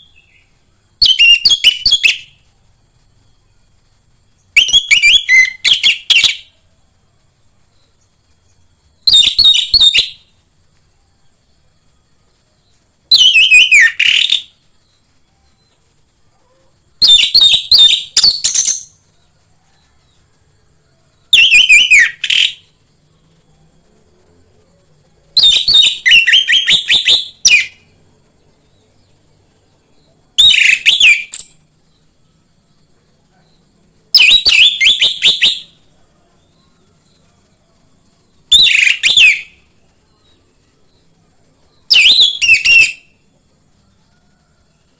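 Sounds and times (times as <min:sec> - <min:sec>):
faint high hiss: 0:00.0 - 0:44.9.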